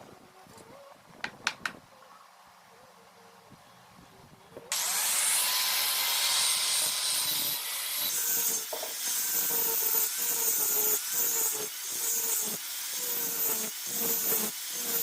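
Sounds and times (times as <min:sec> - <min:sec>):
power grinder grinding steel: 0:04.7 - 0:15.0.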